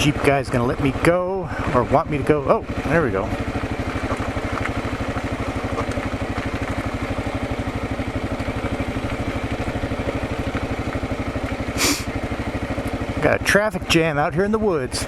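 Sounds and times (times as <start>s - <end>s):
motorcycle engine idling: 0.0s - 15.0s
short hiss: 11.8s - 12.1s.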